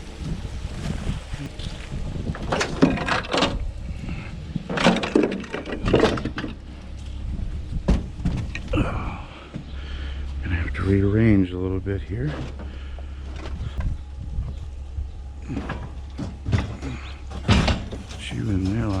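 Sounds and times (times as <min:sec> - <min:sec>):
low rumble: 0:00.0 - 0:19.0
junk knocking and scraping: 0:00.8 - 0:19.0.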